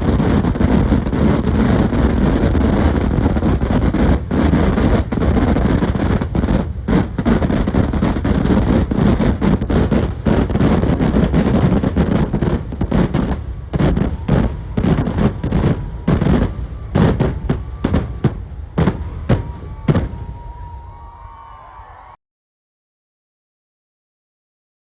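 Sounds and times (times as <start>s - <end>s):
fireworks explosions: 0.0s - 21.1s.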